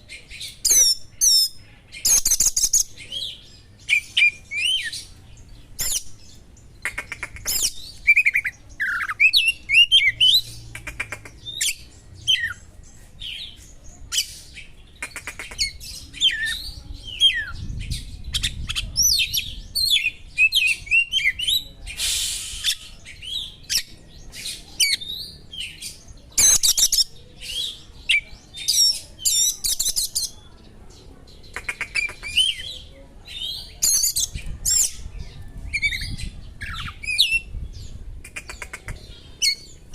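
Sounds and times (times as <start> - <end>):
bird singing whistles and trills: 33.8 - 37.9.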